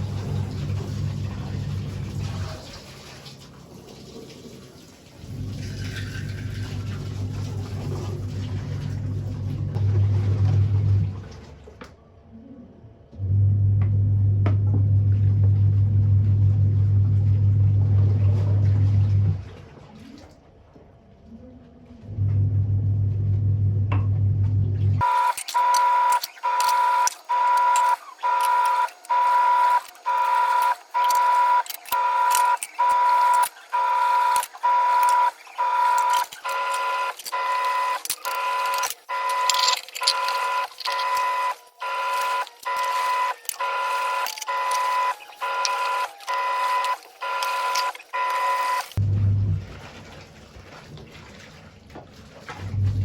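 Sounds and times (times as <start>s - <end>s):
high-pitched electronic tone: 25.0s - 49.0s
low hum: 49.0s - 49.7s.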